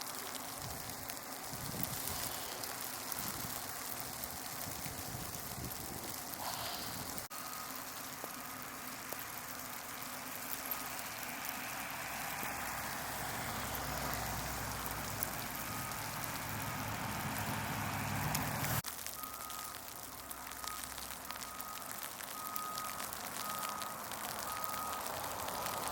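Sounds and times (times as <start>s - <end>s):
tyres hissing on wet road: 0.0s - 25.9s
vehicle engine: 6.4s - 18.8s, 22.4s - 25.9s.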